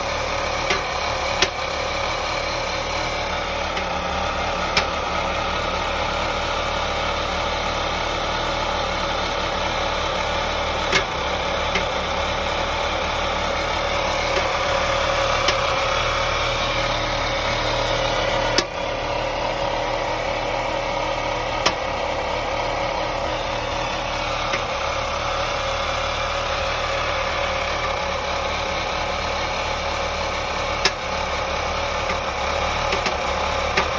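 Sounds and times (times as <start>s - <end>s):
car engine idling: 0.0s - 33.9s
sharp engine knock: 0.6s - 1.7s.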